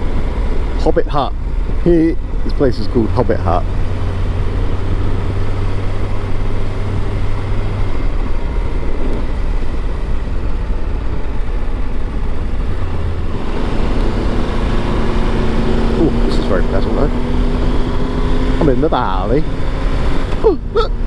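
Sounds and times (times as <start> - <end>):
motorcycle engine running: 0.0 - 21.0
wind rushing over microphone: 0.0 - 21.0.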